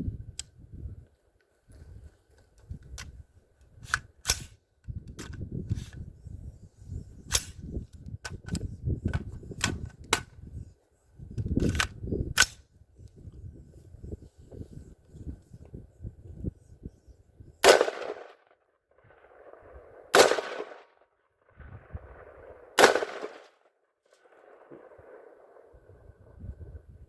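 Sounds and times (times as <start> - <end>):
rifle single shots: 17.6 - 18.4, 20.1 - 20.9, 22.2 - 23.6
low rumble: 21.5 - 22.8.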